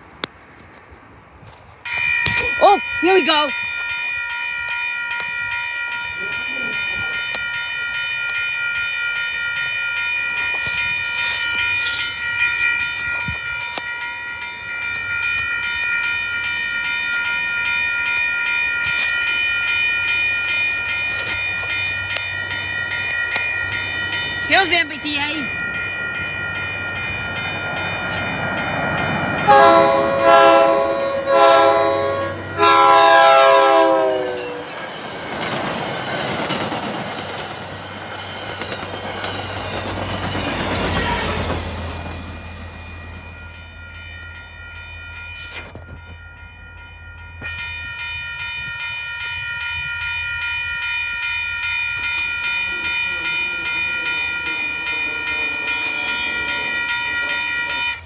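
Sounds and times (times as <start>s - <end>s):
train rumbling past: 0.0s - 58.0s
crossing signal bell ringing: 1.8s - 58.0s
train horn blasts: 29.4s - 34.6s.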